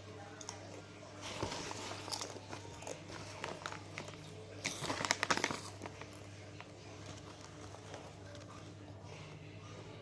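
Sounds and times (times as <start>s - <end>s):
crunchy snacks being chewed: 2.0s - 8.6s.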